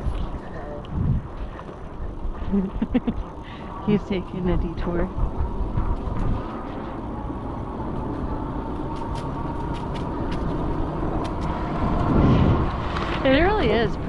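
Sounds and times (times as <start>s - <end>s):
tyres rumbling on trail: 0.0s - 14.0s
wind on microphone: 0.0s - 14.0s
small ticks and rattles: 8.0s - 11.6s.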